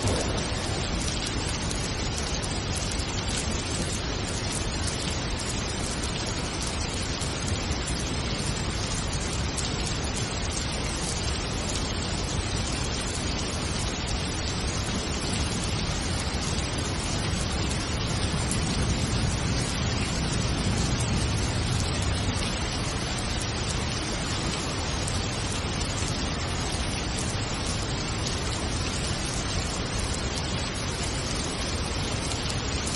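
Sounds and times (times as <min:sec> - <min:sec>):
low rumble: 0:00.0 - 0:02.0
steady rain hiss: 0:00.0 - 0:32.9.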